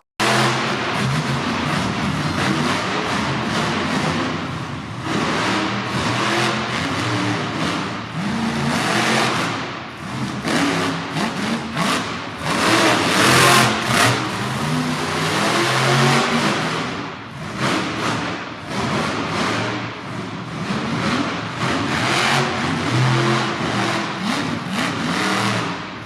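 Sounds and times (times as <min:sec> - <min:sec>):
monster truck engine revving: 0:00.2 - 0:26.0.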